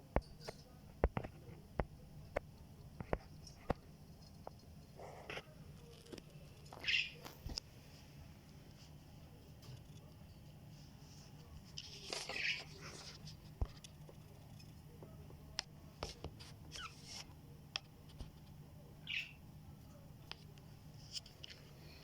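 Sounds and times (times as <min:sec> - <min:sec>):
faint low hum: 0:00.0 - 0:22.0
budgies chirping: 0:06.8 - 0:07.2, 0:19.0 - 0:19.4.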